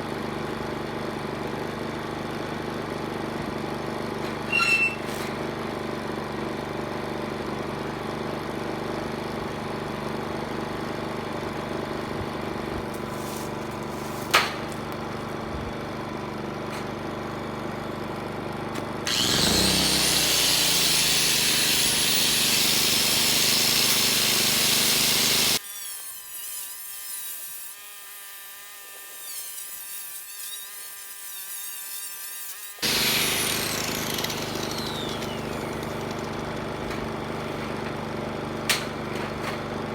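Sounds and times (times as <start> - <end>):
power saw cutting wood: 3.8 - 6.6, 12.4 - 15.4, 18.8 - 39.8.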